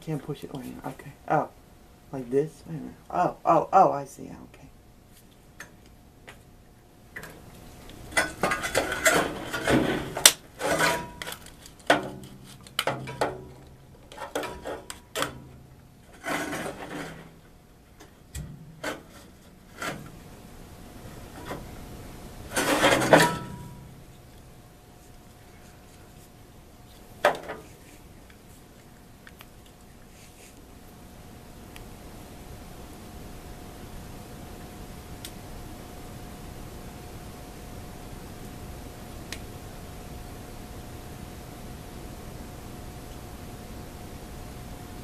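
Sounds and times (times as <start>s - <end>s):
rubbing scraping and clicking: 7.9s - 20.3s, 22.5s - 23.8s
rustling: 22.4s - 30.7s.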